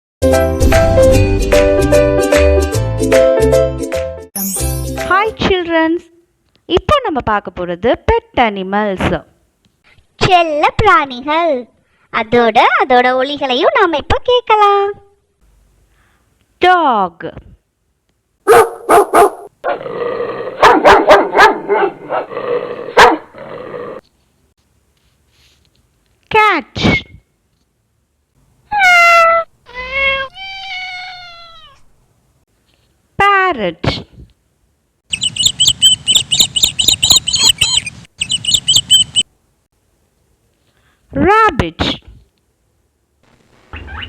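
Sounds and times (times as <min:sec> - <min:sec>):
dog barking: 0:18.4 - 0:19.8, 0:20.6 - 0:22.3, 0:23.0 - 0:23.3
parrot chirping: 0:35.1 - 0:39.3, 0:43.7 - 0:44.0.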